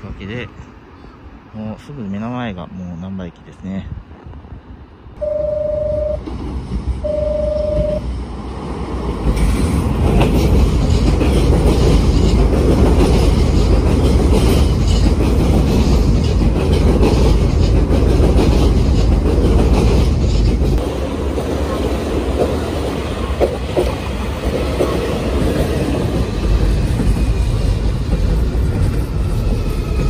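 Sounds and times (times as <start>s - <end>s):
train rumbling: 0.0s - 30.0s
short beeps: 5.2s - 6.3s, 7.0s - 8.1s
wheels clattering on rails: 7.7s - 30.0s.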